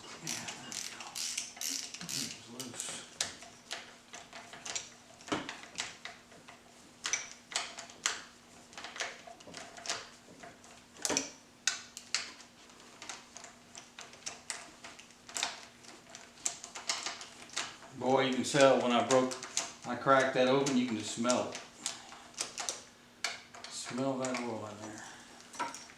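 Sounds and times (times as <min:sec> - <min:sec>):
hand ratchet clicking: 0:00.2 - 0:10.2.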